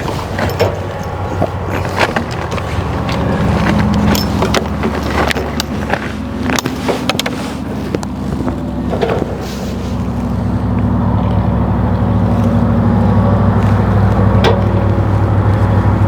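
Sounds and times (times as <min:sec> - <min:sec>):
clicks and knocks of tools: 0:00.0 - 0:09.4
engine idling: 0:00.0 - 0:16.0.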